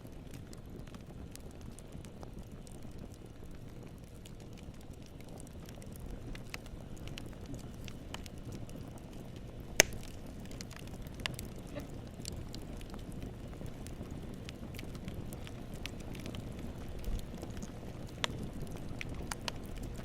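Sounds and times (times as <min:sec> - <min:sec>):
burning wood rush: 0:00.0 - 0:20.0
fire crackles: 0:00.0 - 0:20.0
loud fire pop: 0:09.8 - 0:10.2.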